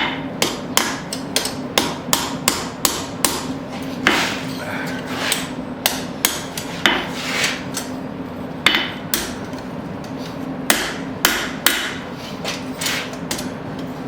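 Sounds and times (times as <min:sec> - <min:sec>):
hammer striking horseshoe on anvil: 0:00.0 - 0:04.2, 0:05.3 - 0:07.1, 0:08.6 - 0:09.5, 0:10.7 - 0:12.1
steady hum: 0:00.0 - 0:14.0.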